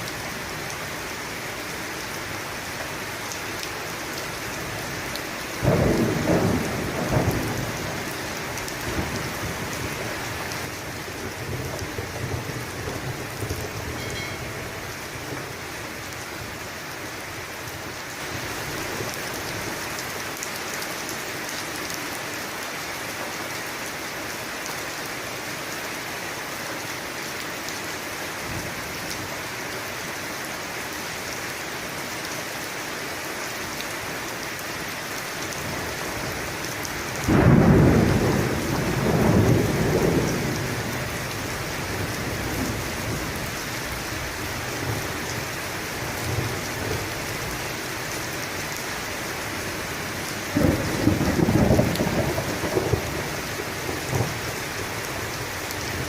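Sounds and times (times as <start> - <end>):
steady rain falling: 0.0 - 56.0
thunderclap rumbling: 5.6 - 15.2, 37.3 - 41.1, 50.5 - 53.3.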